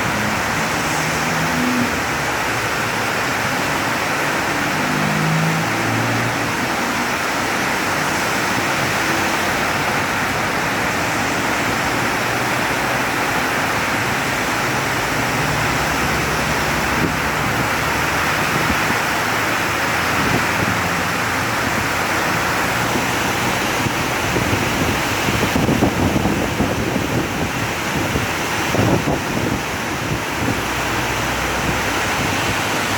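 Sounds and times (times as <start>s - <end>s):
heavy rain pouring: 0.0s - 32.9s
wind buffeting microphone: 7.9s - 32.9s.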